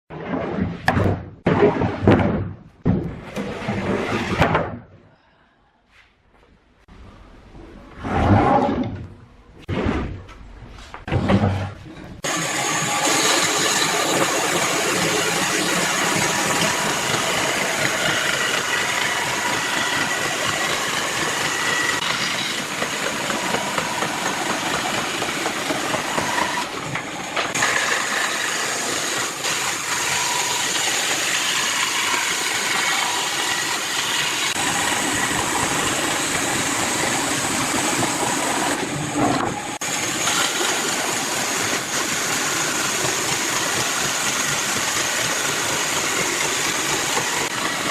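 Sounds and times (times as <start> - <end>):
motor running: 12.2 - 47.9.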